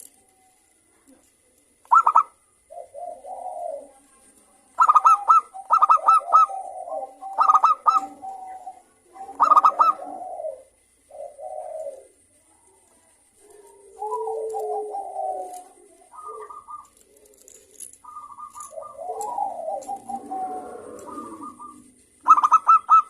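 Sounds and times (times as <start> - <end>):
soft rolling dove coos: 0.0 - 23.0
high staccato dove calls: 1.8 - 3.9, 4.8 - 12.1, 13.7 - 17.0, 18.0 - 23.0.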